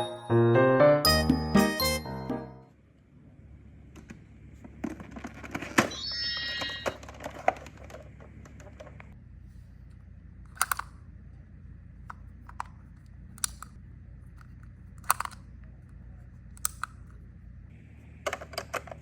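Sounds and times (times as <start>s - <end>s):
plastic toy pieces clacking: 10.5s - 11.0s, 14.4s - 15.5s, 16.6s - 17.2s.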